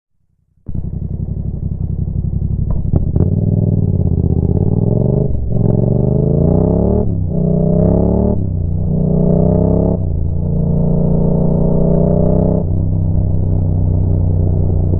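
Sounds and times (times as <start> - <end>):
motorcycle engine idling and revving: 0.2 - 14.9
sharp exhaust cracks: 0.7 - 11.7.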